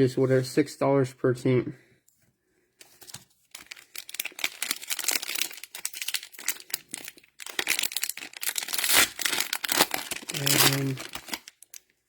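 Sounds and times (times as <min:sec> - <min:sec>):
cellophane wrappers crinkling: 0:02.8 - 0:11.9.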